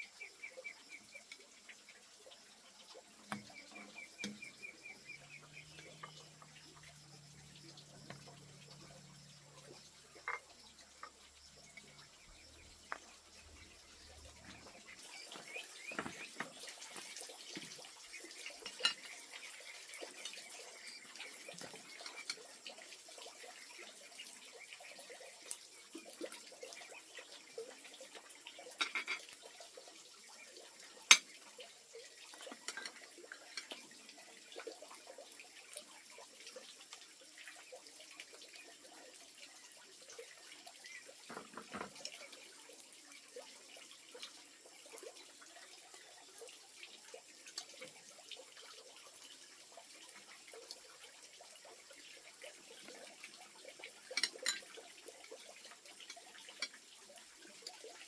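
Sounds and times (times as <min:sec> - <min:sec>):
water splashing and trickling: 0:00.0 - 0:58.0
small clinks and knocks: 0:10.2 - 0:11.9, 0:15.4 - 0:17.1, 0:28.8 - 0:29.3.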